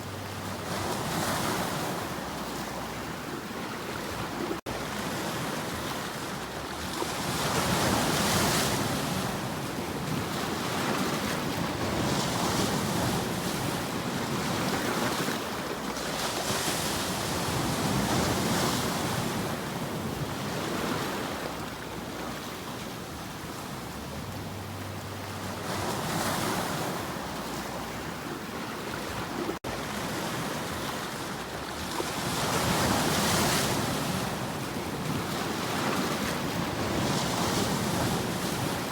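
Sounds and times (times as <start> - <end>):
ocean waves washing ashore: 0.0 - 38.9
wind: 0.0 - 38.9.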